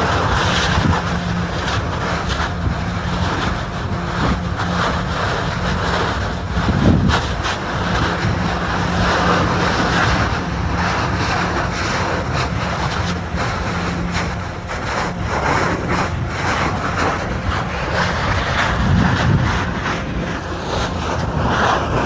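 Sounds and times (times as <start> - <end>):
lava fissure roaring: 0.0 - 22.0
wind buffeting microphone: 0.0 - 22.0.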